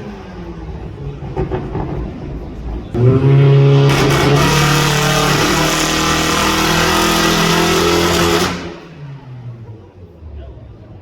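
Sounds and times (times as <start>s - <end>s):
car engine at high revs: 2.9s - 10.0s.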